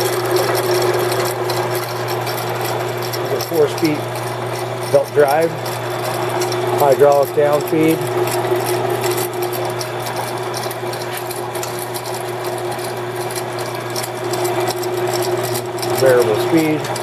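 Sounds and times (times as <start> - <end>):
band saw running: 0.0 - 17.0.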